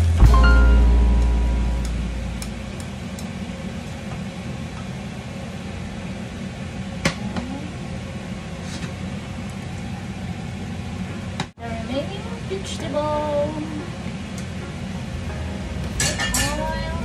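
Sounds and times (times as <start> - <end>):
kitchen hum: 0.0 - 17.0
pans and chopsticks clinking and scraping: 15.9 - 16.8.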